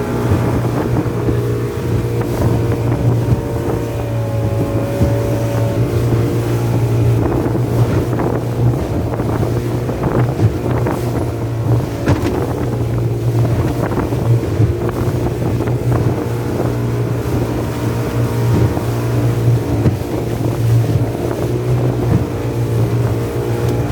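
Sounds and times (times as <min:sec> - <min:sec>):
motorboat engine humming: 0:00.0 - 0:23.9
wind buffeting microphone: 0:00.0 - 0:23.9
short knocks: 0:11.7 - 0:12.7.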